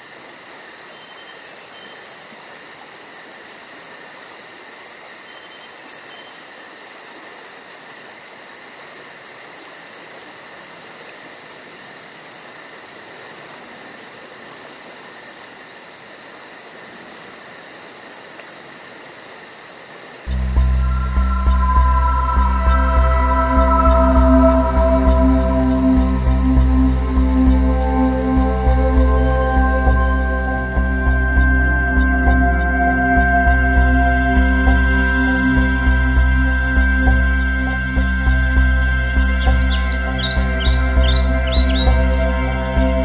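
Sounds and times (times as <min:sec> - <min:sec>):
fast pulsing insect trill: 0:08.2 - 0:31.8, 0:39.3 - 0:43.0.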